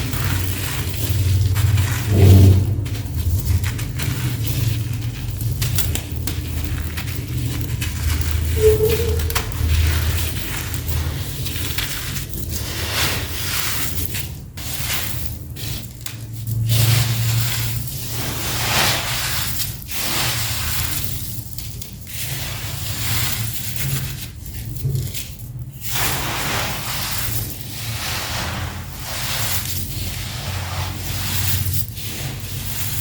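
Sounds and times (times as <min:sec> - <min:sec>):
gritty crunching and crackling: 0:00.0 - 0:25.4.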